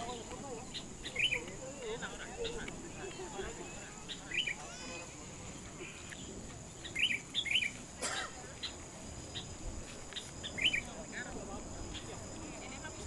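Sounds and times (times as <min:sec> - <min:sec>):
small bird chirping: 0:00.0 - 0:05.1, 0:06.0 - 0:07.8, 0:08.6 - 0:11.0
faint outdoor background noise: 0:00.0 - 0:13.0.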